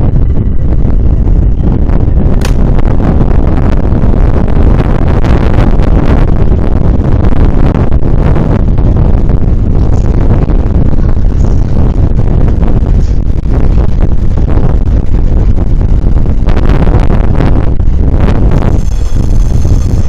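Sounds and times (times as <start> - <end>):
wind buffeting microphone: 0.0 - 20.0
electric train running: 8.6 - 16.4, 17.8 - 20.0.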